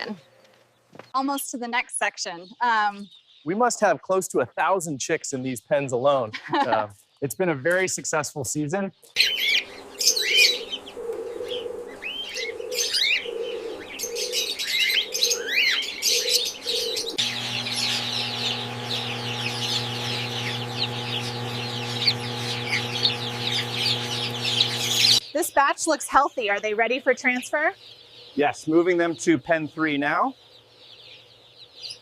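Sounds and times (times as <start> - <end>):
chatter of many birds: 1.9 - 32.0
cockatiels chirping: 9.2 - 32.0
steady low hum: 17.1 - 25.2.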